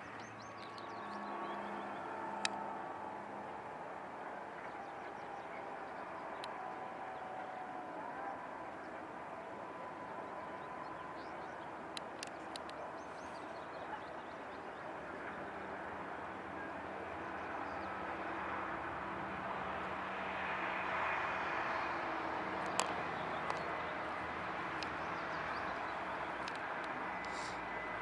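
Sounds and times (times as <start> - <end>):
light clicks: 2.4 - 2.6, 22.6 - 27.7.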